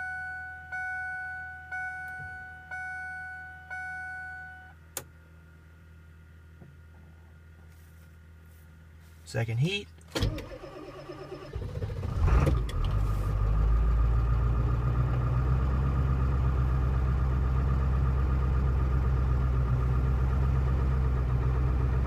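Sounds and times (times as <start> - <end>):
diesel engine cranking and idling: 10.0 - 22.0.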